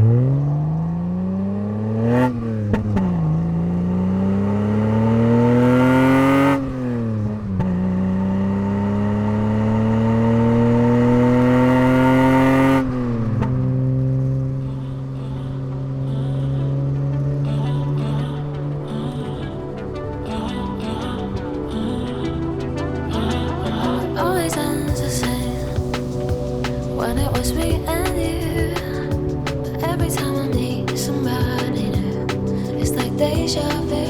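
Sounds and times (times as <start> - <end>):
car engine accelerating through gears: 0.0 - 17.2.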